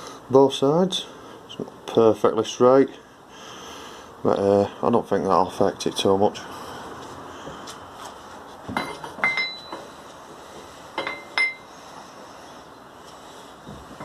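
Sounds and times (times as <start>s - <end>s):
metal-on-metal clinks: 8.8s - 9.9s, 11.0s - 11.7s.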